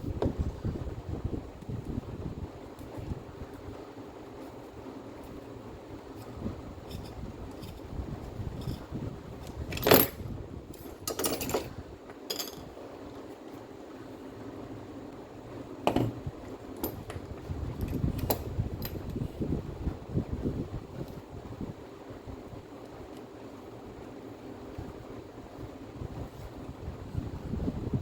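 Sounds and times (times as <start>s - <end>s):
low steady hum: 0.0s - 28.0s
small metal parts clinking: 8.5s - 11.7s, 12.3s - 12.7s.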